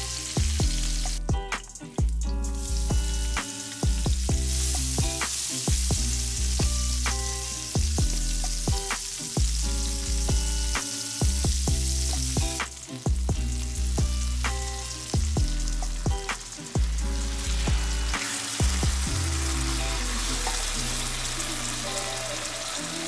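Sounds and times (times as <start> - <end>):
background music with steady beat: 0.0 - 23.0
vegetables sizzling in hot oil: 0.0 - 23.0.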